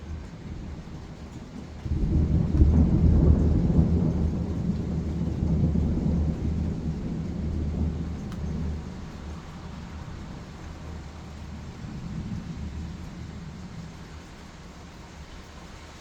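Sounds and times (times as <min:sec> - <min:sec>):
deep rumble of thunder: 0:00.0 - 0:16.0.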